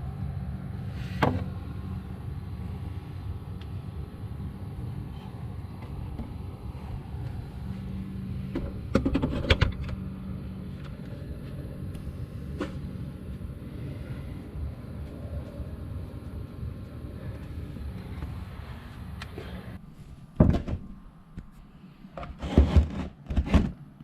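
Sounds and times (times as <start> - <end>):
sharp knocks and rattles: 8.5 - 10.0
low rumble: 9.7 - 20.3.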